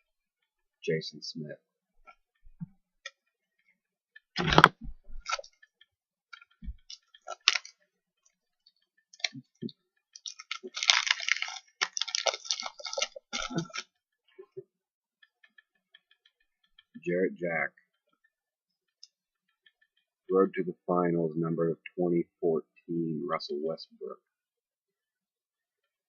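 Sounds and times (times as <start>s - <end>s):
packaging crackling and rustling: 6.8s - 7.8s, 10.2s - 13.8s.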